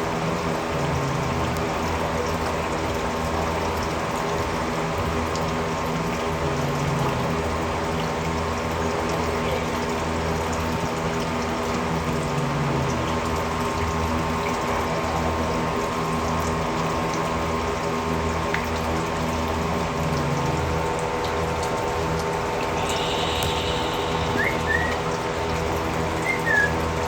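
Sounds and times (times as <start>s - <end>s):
running water: 0.0s - 27.0s
mechanical hum: 18.0s - 27.0s.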